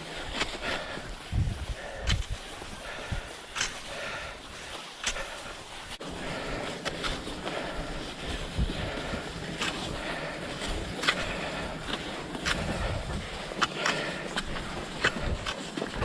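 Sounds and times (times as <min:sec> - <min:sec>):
skis sliding over snow: 0:00.0 - 0:16.0
wind on microphone: 0:00.7 - 0:03.3
sharp clicks and scrapes: 0:02.0 - 0:02.4, 0:03.5 - 0:03.9, 0:04.8 - 0:05.4, 0:10.7 - 0:16.0.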